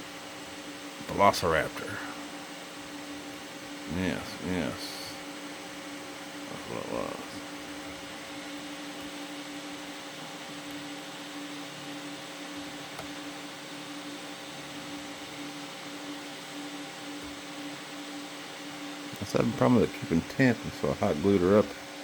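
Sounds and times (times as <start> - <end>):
three-d printers whirring hum: 0.0 - 22.0.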